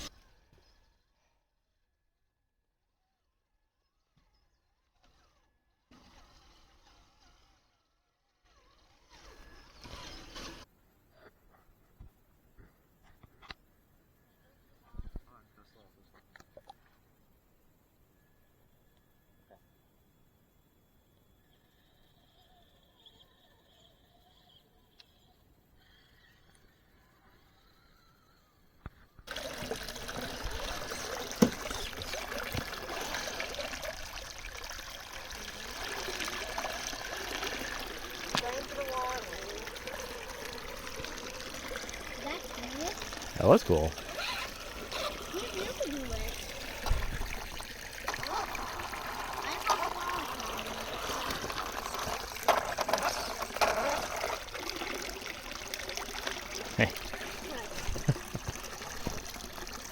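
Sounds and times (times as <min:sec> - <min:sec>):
water trickling: 0:29.3 - 0:59.9.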